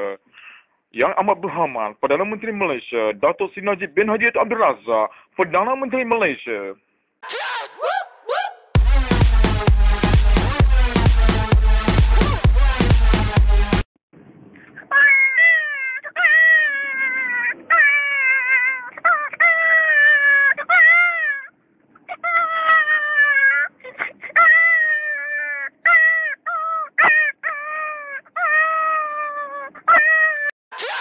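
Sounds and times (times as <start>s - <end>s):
man imitating animal cries: 7.2s - 8.8s, 14.8s - 21.5s, 22.1s - 31.0s.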